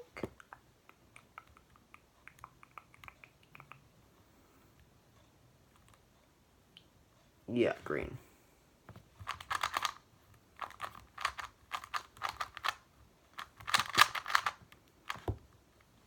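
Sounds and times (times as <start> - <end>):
plastic puzzle cube clicking: 9.2 - 10.0, 10.6 - 15.4.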